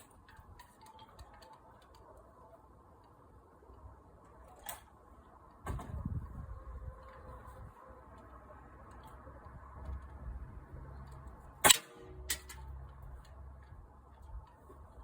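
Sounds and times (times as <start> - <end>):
air gun shot: 11.6 - 12.4.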